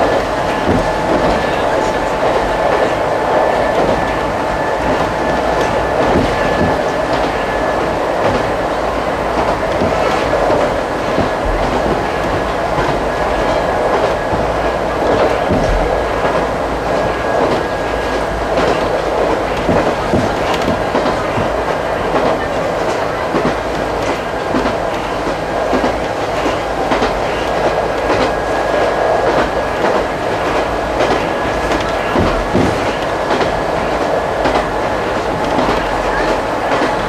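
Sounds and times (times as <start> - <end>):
clickety-clack over rail joints: 0.0 - 37.0
rumble of wheels on rail: 0.0 - 37.0.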